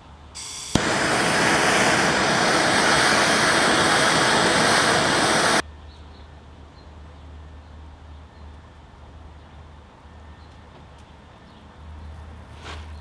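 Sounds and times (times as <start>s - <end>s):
gas torch flame hissing: 0.4s - 5.6s.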